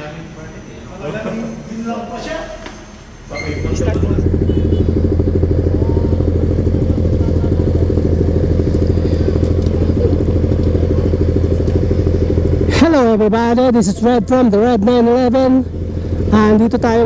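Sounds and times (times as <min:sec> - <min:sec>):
motorcycle engine idling: 0:03.4 - 0:17.0.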